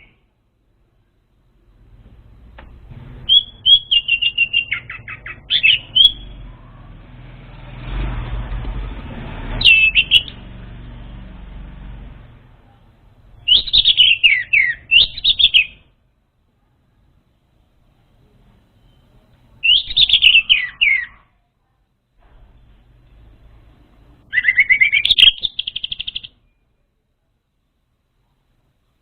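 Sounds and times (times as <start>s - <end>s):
thrush whistled song: 0.0s - 0.2s, 3.2s - 6.5s, 9.6s - 10.4s, 13.4s - 15.9s, 18.8s - 21.2s, 24.2s - 26.9s
soft rumbling hiss: 0.0s - 20.6s, 21.3s - 24.6s, 25.2s - 29.0s.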